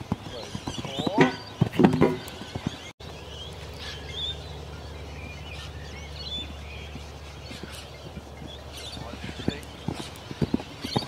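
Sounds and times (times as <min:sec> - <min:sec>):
birds chirping: 0:00.0 - 0:11.0
low outdoor rumble: 0:00.0 - 0:11.0.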